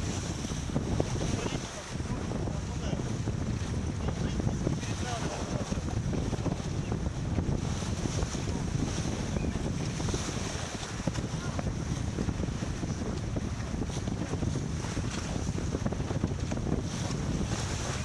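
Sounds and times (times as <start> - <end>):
water washing along hull: 0.0 - 18.0
wind buffeting microphone: 0.0 - 18.0.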